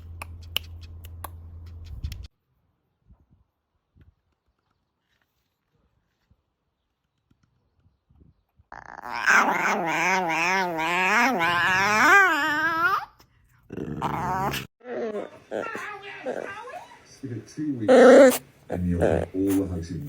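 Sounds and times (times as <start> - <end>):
dog howling: 9.0 - 13.1, 14.0 - 16.8.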